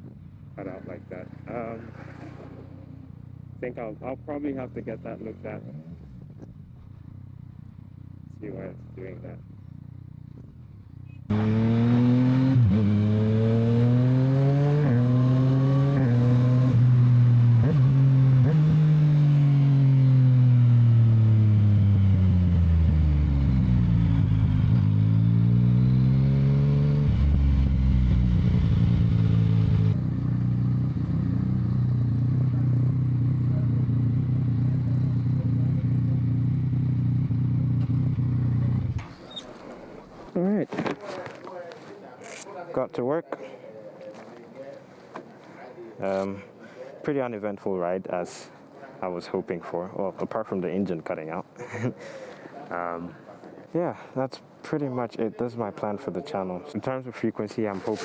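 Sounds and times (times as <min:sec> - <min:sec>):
wind and road noise: 0:05.2 - 0:41.7
motorcycle engine changing gears: 0:09.5 - 0:40.2.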